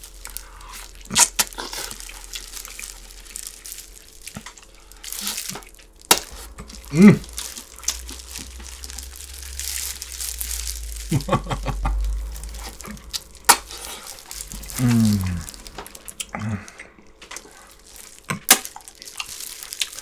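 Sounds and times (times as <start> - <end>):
plastic gloves crinkling: 0.0 - 20.0
person humming mm: 6.5 - 7.5, 14.5 - 16.8.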